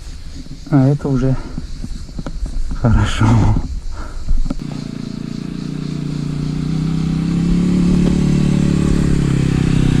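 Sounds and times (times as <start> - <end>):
motorcycle engine running: 4.5 - 10.0.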